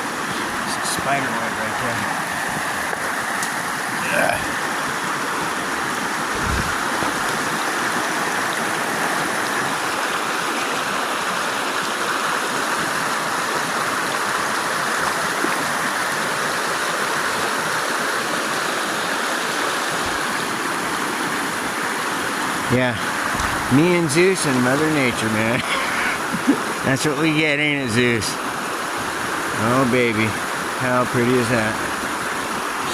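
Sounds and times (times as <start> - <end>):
river water rushing: 0.0 - 32.9.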